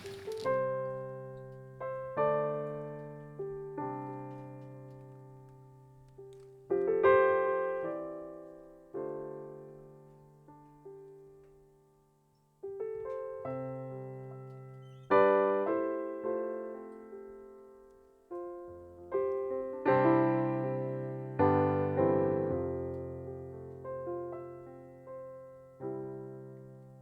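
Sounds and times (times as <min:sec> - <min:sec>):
soft solo piano: 0:00.0 - 0:27.0.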